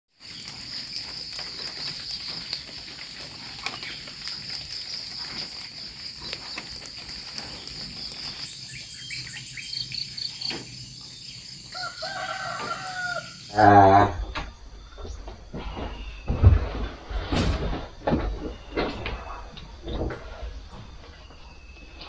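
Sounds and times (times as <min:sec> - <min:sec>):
insects chirring: 0:00.1 - 0:22.0.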